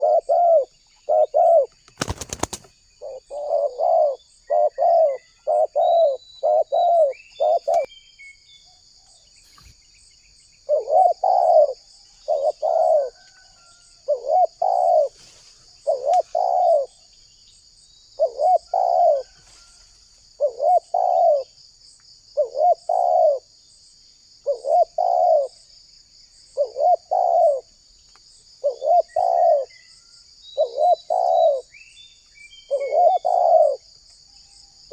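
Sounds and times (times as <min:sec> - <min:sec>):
dove cooing: 0:00.0 - 0:07.9, 0:10.6 - 0:15.2, 0:15.8 - 0:17.0, 0:18.2 - 0:19.4, 0:20.4 - 0:21.6, 0:22.4 - 0:23.5, 0:24.4 - 0:25.6, 0:26.6 - 0:27.7, 0:28.6 - 0:29.8, 0:30.6 - 0:31.7, 0:32.7 - 0:33.9.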